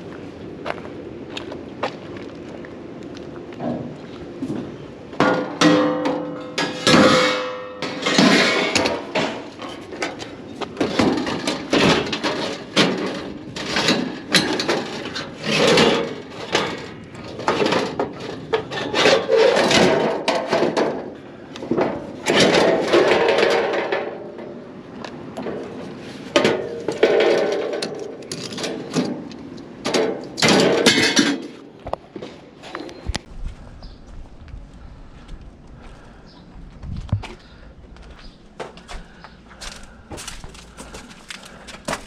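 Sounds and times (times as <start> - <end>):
scrap knocking and clattering: 3.7 - 21.1, 21.7 - 24.5, 25.4 - 31.6.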